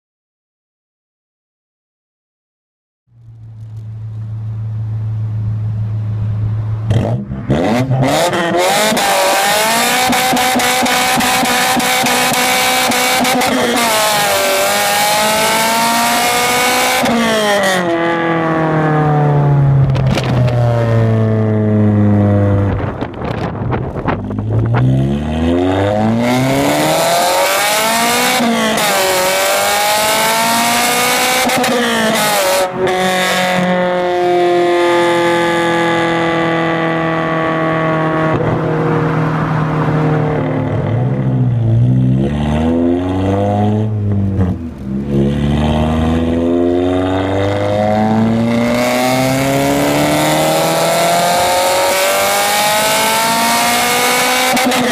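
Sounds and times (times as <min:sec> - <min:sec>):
car engine idling: 0:03.1 - 0:06.9
car engine revving: 0:03.2 - 0:54.9.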